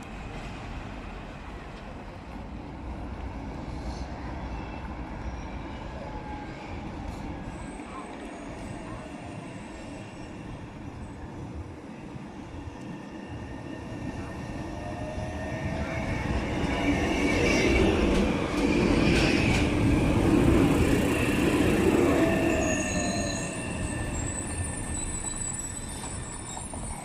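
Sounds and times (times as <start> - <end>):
tram rumbling past: 0.0 - 27.0
high wheel squeal: 22.1 - 27.0.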